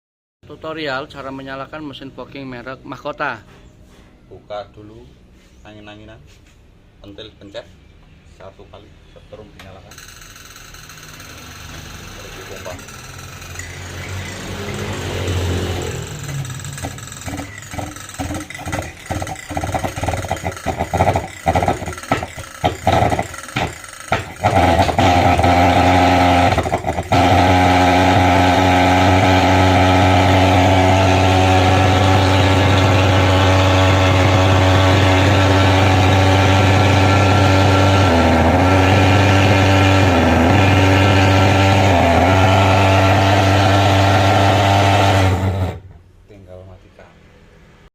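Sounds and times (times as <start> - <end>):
fogging machine sputtering pops: 11.1 - 46.0
fogging machine droning: 11.4 - 45.8.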